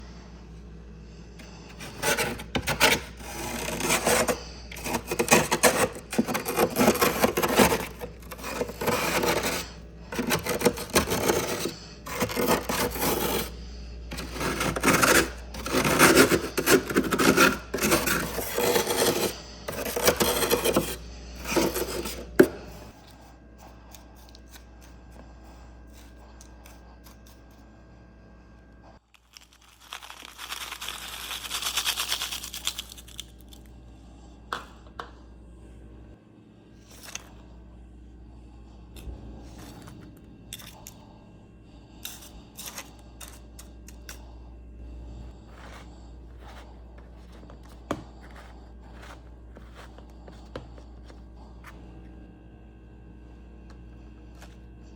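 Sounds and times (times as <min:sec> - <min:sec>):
crunching of powdery frost: 0:29.2 - 0:33.3.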